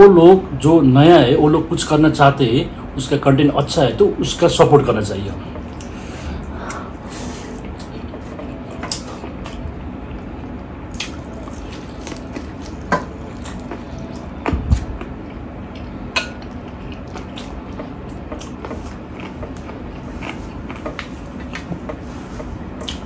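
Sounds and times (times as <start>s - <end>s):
wet chewing: 10.9s - 22.0s.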